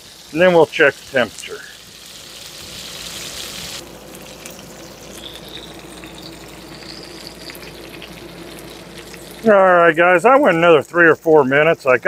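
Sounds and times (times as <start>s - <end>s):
food frying in oil: 0.0s - 12.0s.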